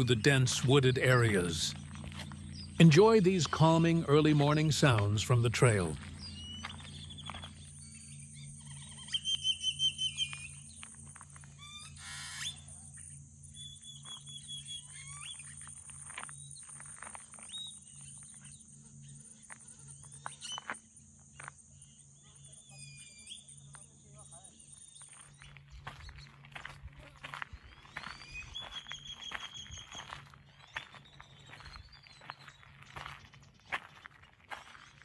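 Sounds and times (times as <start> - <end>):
bright repeated bird notes: 0.0 - 10.8
wild birds chirping: 0.0 - 35.0
bird whistled notes: 6.2 - 10.7, 11.6 - 12.7, 13.5 - 15.6, 27.8 - 32.3.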